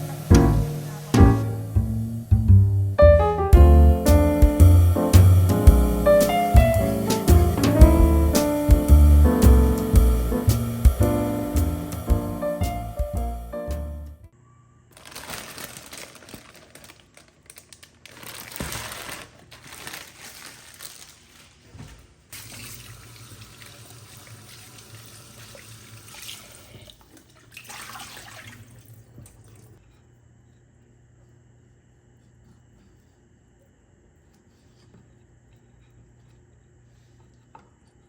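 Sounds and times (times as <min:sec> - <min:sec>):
low steady hum: 0:00.0 - 0:14.6
tap water splashing into sink: 0:22.4 - 0:29.7.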